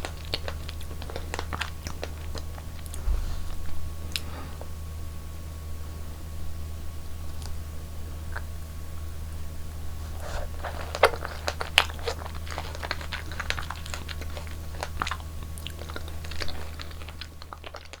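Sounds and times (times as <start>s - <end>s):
person chewing and biting food: 0.0s - 3.1s, 10.0s - 18.0s
low hum: 1.9s - 10.2s.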